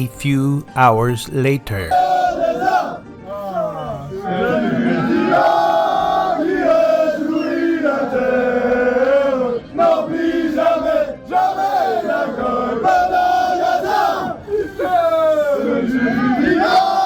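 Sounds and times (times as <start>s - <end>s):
crowd singing and chanting: 4.1s - 14.4s.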